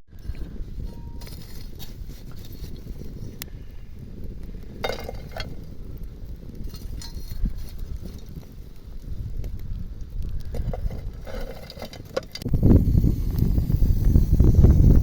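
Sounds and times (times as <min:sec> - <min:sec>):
light clinks and scrapes: 0:00.3 - 0:03.5, 0:06.6 - 0:08.5, 0:10.5 - 0:12.5.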